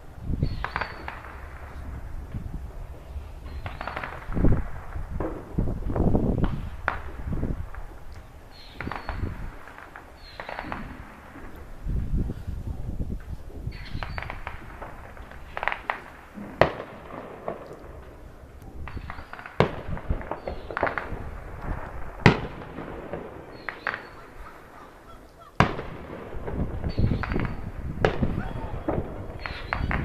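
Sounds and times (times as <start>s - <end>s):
firework bangs: 0.0s - 30.0s
firework pops and crackles: 0.4s - 24.4s, 25.6s - 30.0s.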